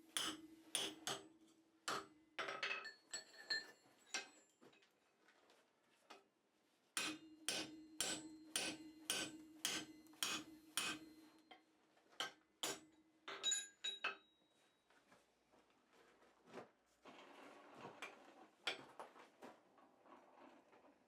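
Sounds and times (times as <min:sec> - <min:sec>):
hammer striking steel on anvil: 0:00.1 - 0:01.3, 0:01.9 - 0:02.1, 0:07.0 - 0:11.3, 0:12.2 - 0:12.9.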